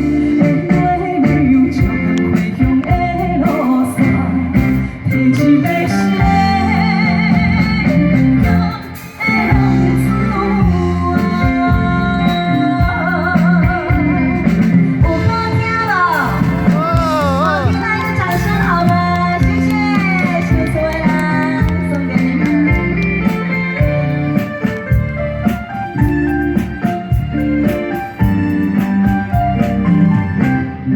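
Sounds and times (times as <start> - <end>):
woman singing with vibrato: 0.0 - 14.4, 15.0 - 23.0
backing track with guitar and bass: 0.0 - 30.9.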